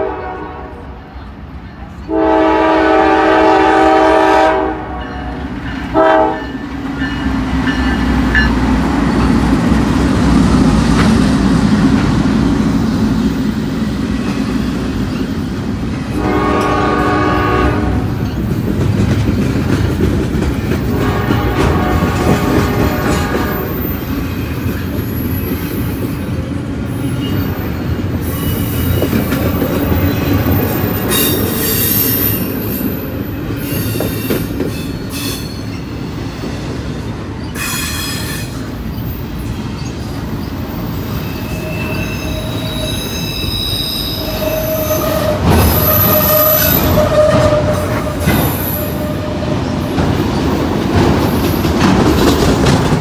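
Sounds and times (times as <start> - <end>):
freight train rolling past: 0.0 - 53.0
steel wheels rumbling on rail: 0.0 - 53.0
high wheel squeal: 26.9 - 29.0, 37.4 - 49.9.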